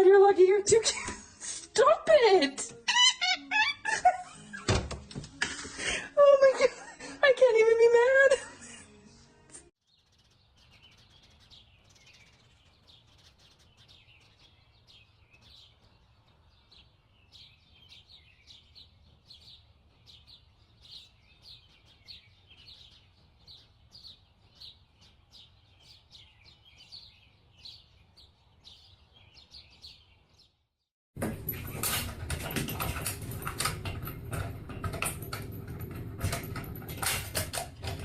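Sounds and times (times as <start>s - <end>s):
small bird chirping: 9.8s - 30.7s.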